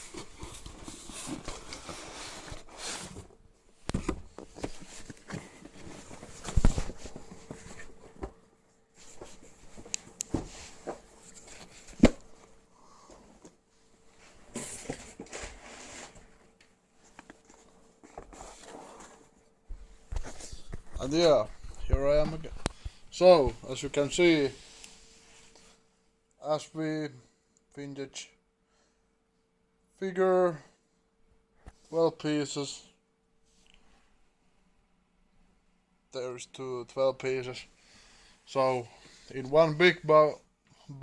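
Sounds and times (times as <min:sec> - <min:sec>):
cardboard boxes being handled: 0:00.0 - 0:08.4
faint steady hum: 0:00.0 - 0:41.0.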